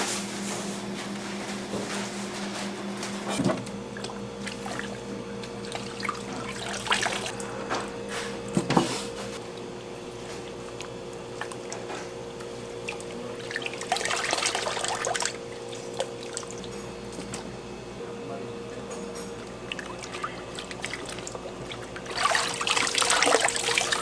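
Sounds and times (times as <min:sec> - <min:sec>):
two-tone machine hum: 0:00.0 - 0:24.0
water running and splashing: 0:05.6 - 0:07.4, 0:12.8 - 0:16.8, 0:19.6 - 0:24.0.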